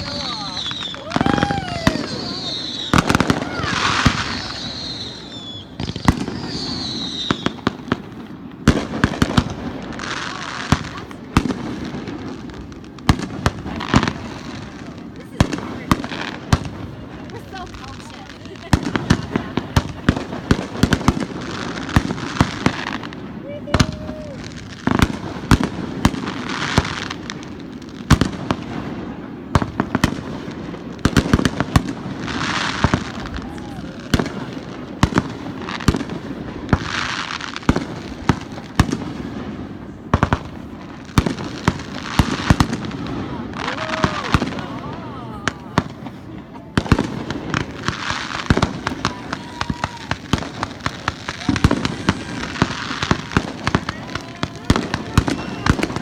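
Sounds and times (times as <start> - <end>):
falling firework whistle: 0.0 - 8.0, 20.8 - 27.2, 31.1 - 35.2, 41.2 - 46.0, 47.9 - 56.0
crackling firework burst: 0.0 - 56.0
firework bangs: 0.0 - 56.0.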